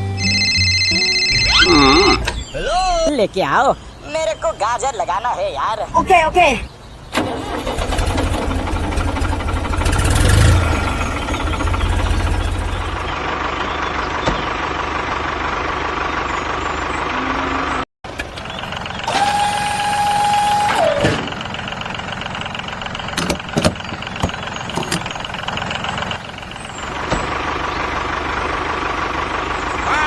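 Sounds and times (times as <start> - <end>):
held high tone: 0.0 - 3.1
tractor engine running: 6.2 - 30.0.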